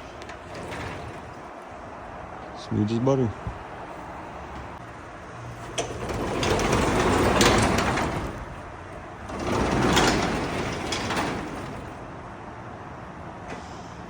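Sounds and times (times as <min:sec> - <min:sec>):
garage door rumbling rattle: 0:00.0 - 0:02.2, 0:03.5 - 0:12.4.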